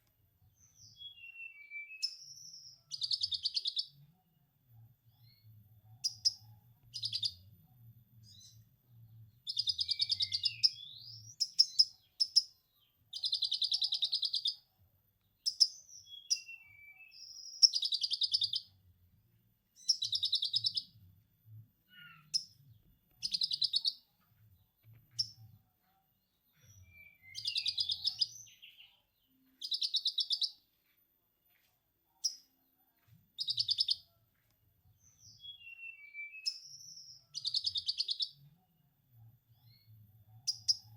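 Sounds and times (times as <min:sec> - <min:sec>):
bird chirps: 0:00.5 - 0:04.1, 0:05.0 - 0:08.7, 0:09.3 - 0:18.8, 0:19.8 - 0:21.0, 0:21.8 - 0:30.8, 0:31.6 - 0:38.6, 0:39.5 - 0:40.9.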